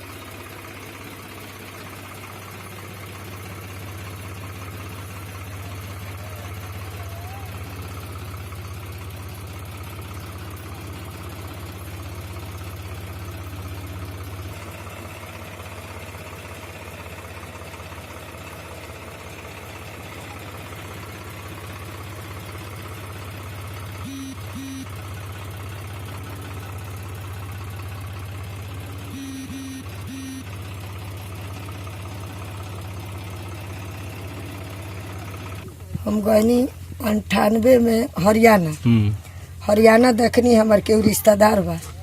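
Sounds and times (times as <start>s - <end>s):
tractor engine running: 0.0s - 42.0s
short beeps: 24.1s - 24.9s, 29.2s - 30.5s.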